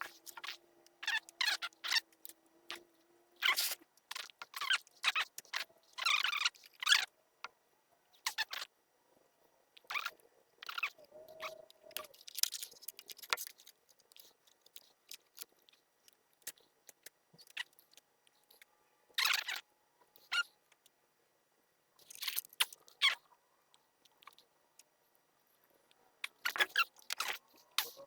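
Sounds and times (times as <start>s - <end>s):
hands rustling and scraping parts: 11.4s - 19.5s.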